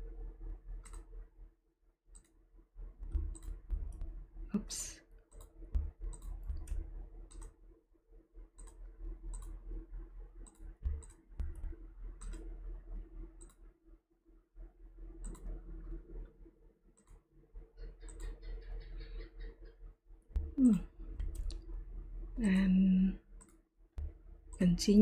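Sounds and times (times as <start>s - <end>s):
low steady hum: 0.0s - 1.5s, 2.5s - 25.0s
computer mouse clicking: 0.8s - 1.1s, 2.1s - 2.3s, 3.0s - 4.2s, 5.3s - 7.6s, 8.6s - 9.6s, 10.4s - 12.6s, 13.4s - 13.6s, 15.2s - 15.6s, 17.0s - 17.2s, 18.0s - 19.0s, 20.4s - 21.6s.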